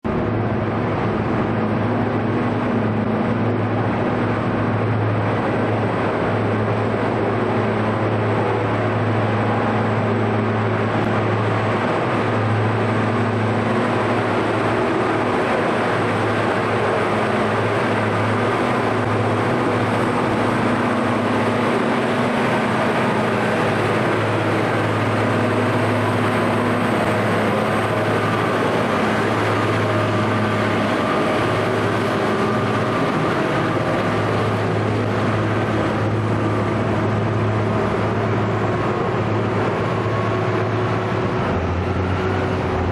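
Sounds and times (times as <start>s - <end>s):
diesel machinery humming: 0.0s - 42.9s.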